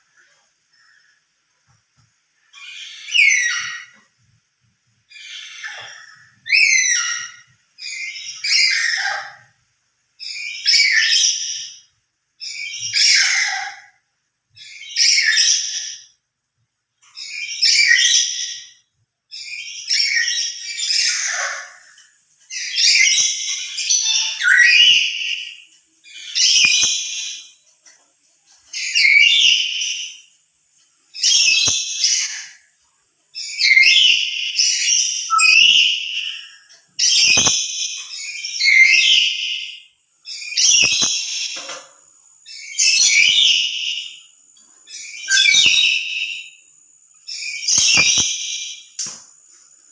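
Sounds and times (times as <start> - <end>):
parrot screeching: 2.6 - 4.0, 5.2 - 9.5, 12.6 - 14.0, 19.5 - 25.6, 33.4 - 39.7, 45.0 - 46.4.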